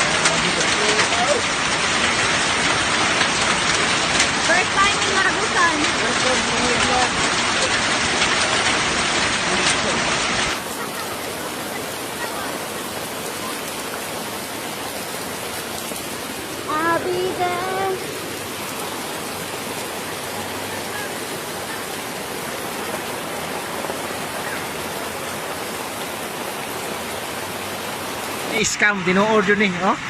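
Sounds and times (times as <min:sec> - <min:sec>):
heavy rain and hail: 0:00.0 - 0:30.0
person calling out: 0:16.7 - 0:18.0.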